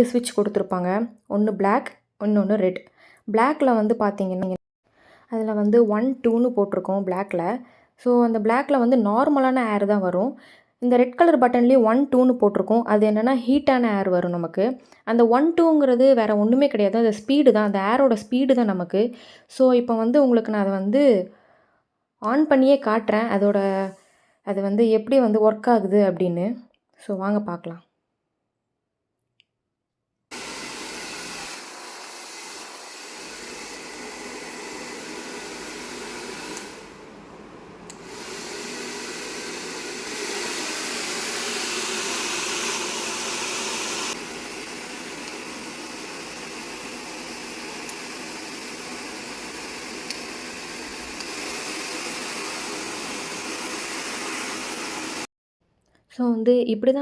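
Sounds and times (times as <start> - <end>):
hair dryer blowing air: 30.3 - 55.3.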